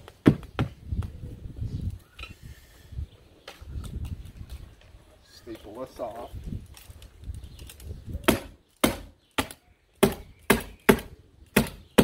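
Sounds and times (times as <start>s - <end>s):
stapler shots into siding: 8.2s - 12.0s.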